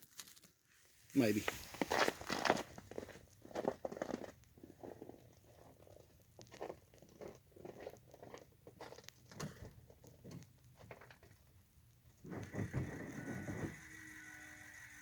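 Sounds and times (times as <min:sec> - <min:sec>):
footsteps on frozen ground: 0:01.2 - 0:05.8.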